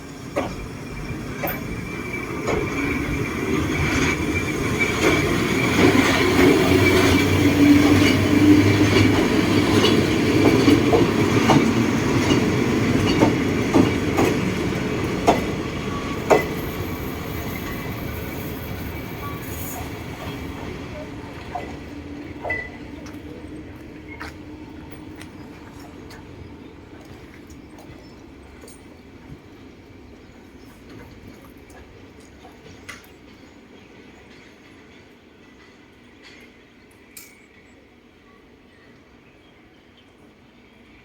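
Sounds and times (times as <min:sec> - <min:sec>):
train wagons rumbling and clacking: 0:00.0 - 0:38.0.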